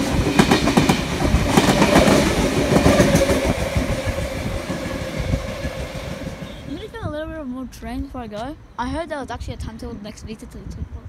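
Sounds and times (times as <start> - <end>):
wheels clacking over rail joints: 0.0 - 6.6
train passing at speed: 0.0 - 8.6.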